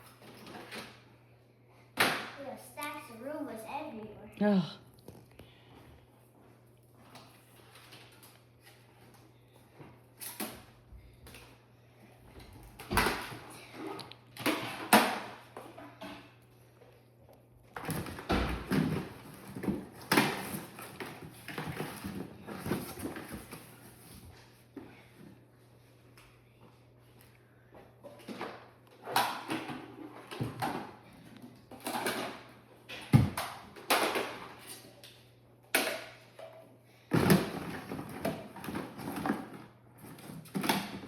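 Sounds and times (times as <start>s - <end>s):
objects clunking and knocking: 12.2s - 17.0s, 17.6s - 25.6s, 27.7s - 41.0s.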